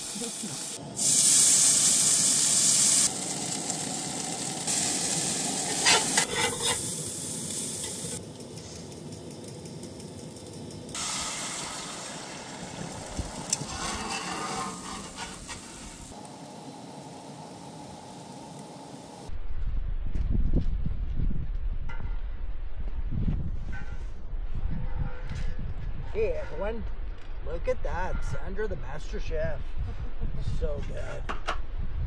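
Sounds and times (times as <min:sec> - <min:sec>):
food sizzling in a pan: 0:00.0 - 0:08.2, 0:10.9 - 0:19.3.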